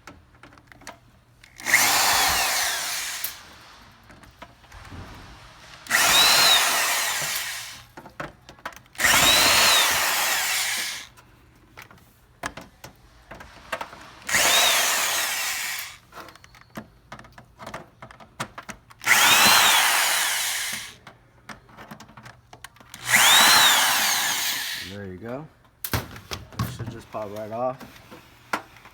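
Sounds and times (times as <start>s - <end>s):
clicks and rattles of handling: 0.0s - 1.8s, 7.9s - 9.2s, 16.0s - 19.2s, 20.7s - 23.2s
power drill backing out screws: 1.4s - 8.2s, 8.8s - 11.1s, 13.4s - 16.8s, 19.0s - 21.0s, 22.8s - 25.0s.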